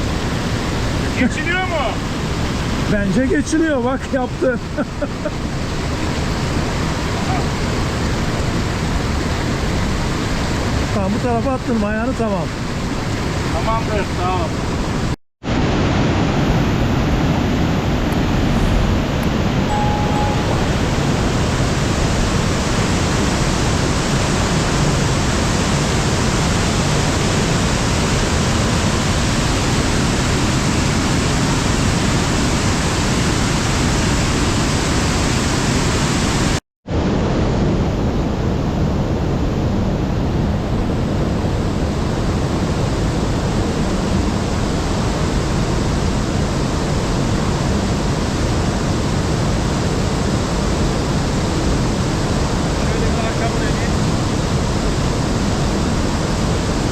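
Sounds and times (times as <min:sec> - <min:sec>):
waterfall rushing: 0:00.0 - 0:11.6, 0:12.2 - 0:36.6.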